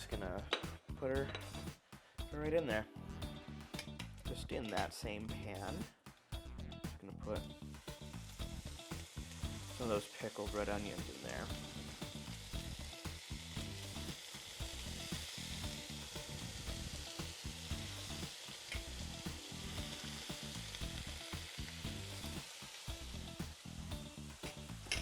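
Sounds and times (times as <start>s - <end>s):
onions sizzling in a pan: 7.7s - 25.0s.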